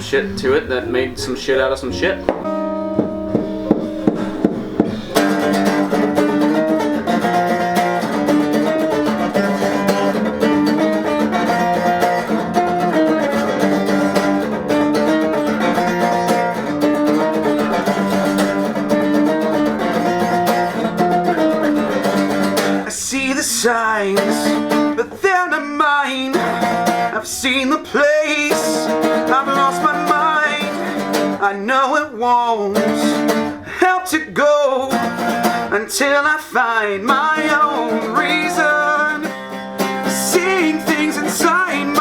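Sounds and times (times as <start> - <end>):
rock guitar riff: 0.0 - 25.2, 26.3 - 31.5, 32.7 - 33.8, 34.8 - 42.0
rock band playing: 1.8 - 22.8.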